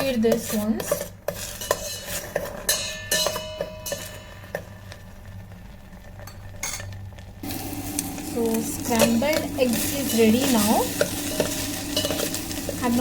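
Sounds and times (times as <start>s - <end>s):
spoon scraping metal pot: 0.0s - 4.6s, 9.0s - 13.0s.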